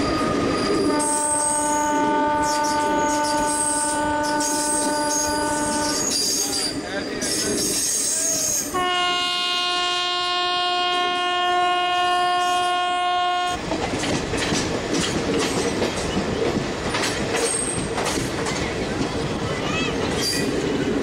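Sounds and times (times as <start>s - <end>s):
train horn blast: 0.9s - 6.2s, 8.7s - 13.6s
train wheels clattering over rail joints: 13.6s - 21.0s.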